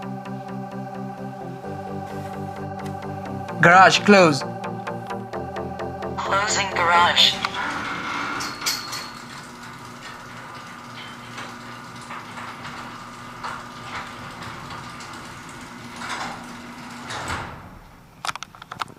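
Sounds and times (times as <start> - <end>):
garage door opener motor humming: 0.0 - 18.4
door clicks and rattles: 7.8 - 18.9.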